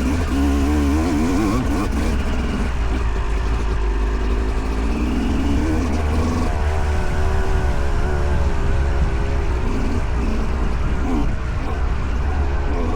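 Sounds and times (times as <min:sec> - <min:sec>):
dirt bike engine revving: 0:00.0 - 0:12.9.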